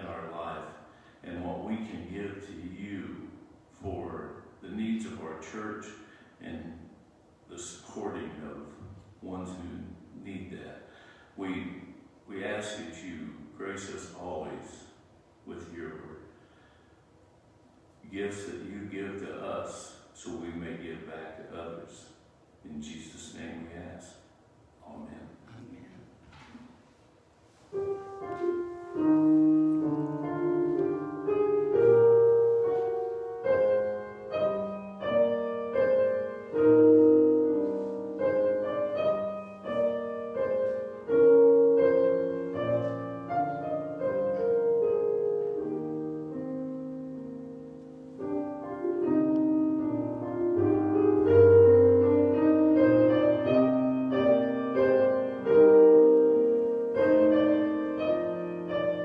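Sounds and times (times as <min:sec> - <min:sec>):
calm slow piano piece: 0:23.0 - 0:59.0.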